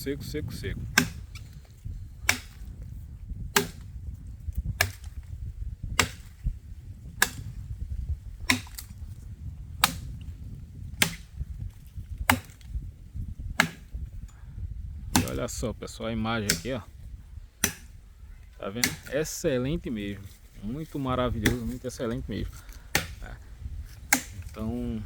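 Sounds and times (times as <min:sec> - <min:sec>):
low rumble: 0:00.0 - 0:25.0
brush hook chopping dry wood: 0:00.4 - 0:12.8, 0:13.4 - 0:14.2, 0:15.0 - 0:15.6, 0:16.4 - 0:17.0, 0:17.6 - 0:18.0, 0:18.8 - 0:19.4, 0:21.2 - 0:24.7.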